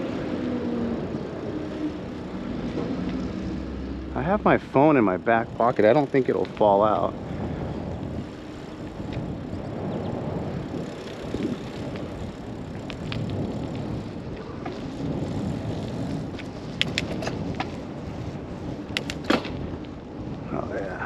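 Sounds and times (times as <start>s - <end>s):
bicycle tyres rumbling on road: 0.0s - 21.0s
wind on microphone: 0.0s - 21.0s
sharp clicks: 18.9s - 19.4s.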